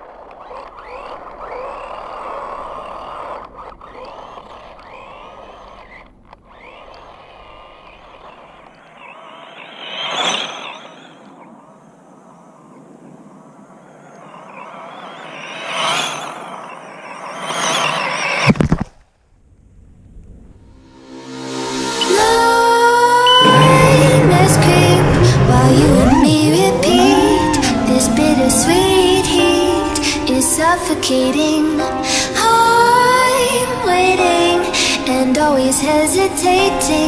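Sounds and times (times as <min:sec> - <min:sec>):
drone motors whining: 0:22.0 - 0:37.0.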